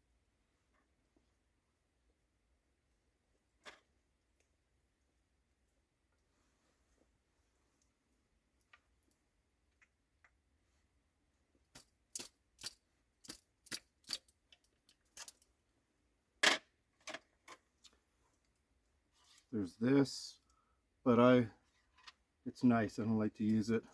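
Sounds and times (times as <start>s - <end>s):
clicks of small hard objects: 11.7s - 15.4s.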